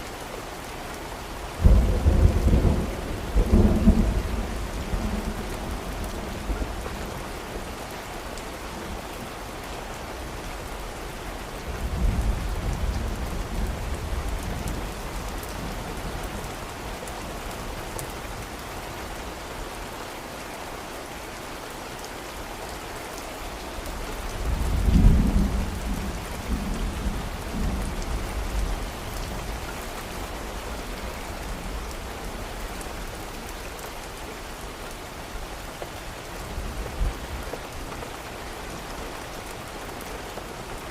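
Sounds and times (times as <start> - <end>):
steady rain: 0.0 - 40.9
distant thunder rumbling: 1.6 - 6.8.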